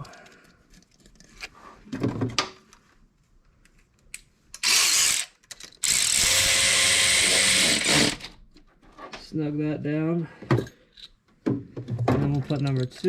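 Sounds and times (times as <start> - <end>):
cordless power tool driving bolt: 4.6 - 8.3.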